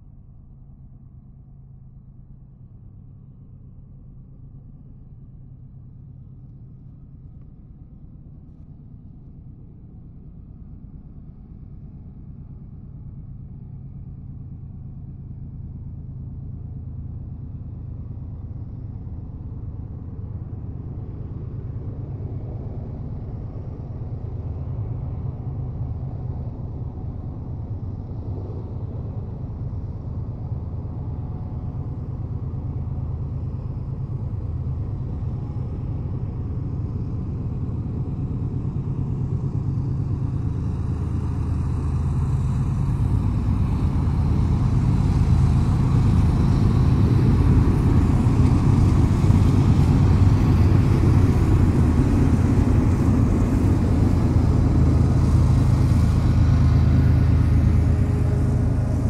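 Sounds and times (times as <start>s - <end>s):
freight train rumble: 17.9s - 59.0s.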